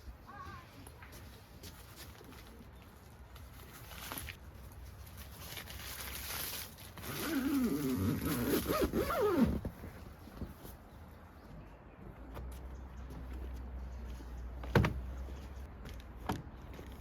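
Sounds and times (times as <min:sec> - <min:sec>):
tent zipper rasping: 0:07.0 - 0:09.7.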